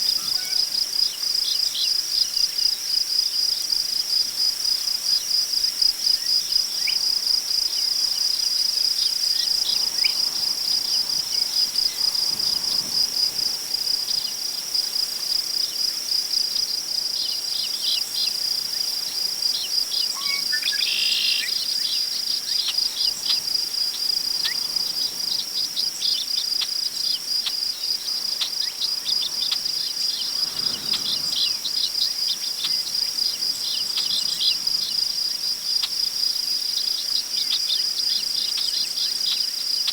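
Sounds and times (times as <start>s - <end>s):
crickets chirping: 0.0s - 39.9s
wind rustling in grass: 4.2s - 39.9s
bird calls: 20.2s - 21.6s.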